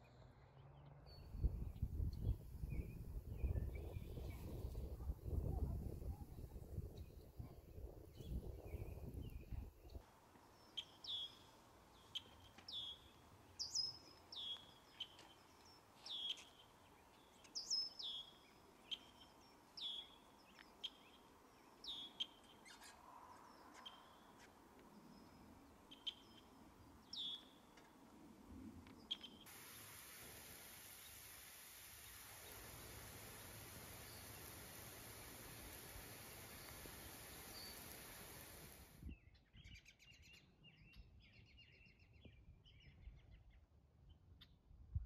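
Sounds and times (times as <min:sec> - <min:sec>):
lawn sprinklers hissing: 0:29.5 - 0:39.0
bird calling: 0:31.9 - 0:38.8.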